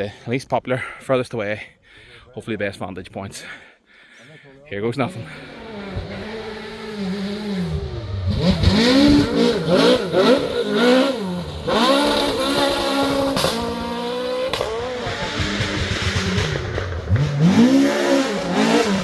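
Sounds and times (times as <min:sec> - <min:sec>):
rally car engine revving: 0:05.0 - 0:19.0.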